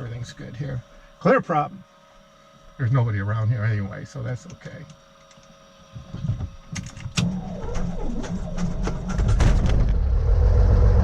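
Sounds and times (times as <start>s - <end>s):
aircraft engine running: 6.7s - 11.0s
starter turning engine over: 7.2s - 10.2s.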